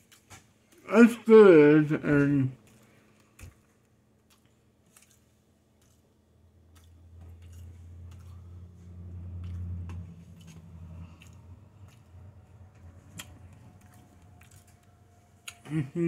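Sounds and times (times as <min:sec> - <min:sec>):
chewing with wet mouth clicks: 0:02.6 - 0:15.7
low hum: 0:06.3 - 0:16.0.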